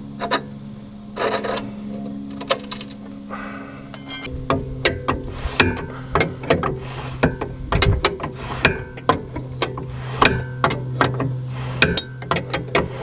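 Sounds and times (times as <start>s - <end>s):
steady low hum: 0.0s - 13.0s
metallic clicks and clanks of tools: 2.3s - 3.1s, 3.9s - 13.0s.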